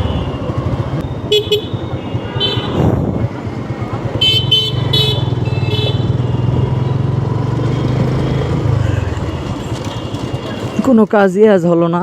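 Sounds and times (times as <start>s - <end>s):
vehicle horn beeps: 0.0s - 3.0s, 4.2s - 7.1s, 9.1s - 11.0s
motorcycle engine running: 0.0s - 10.8s.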